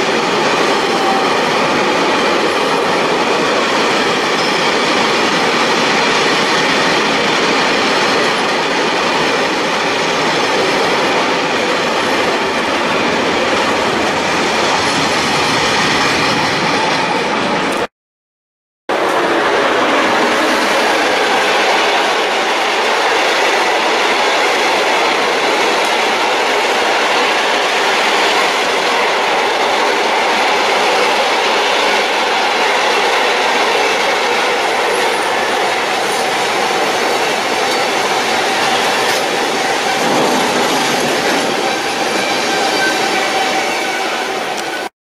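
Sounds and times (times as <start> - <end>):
train wagons rumbling: 18.9 - 44.9.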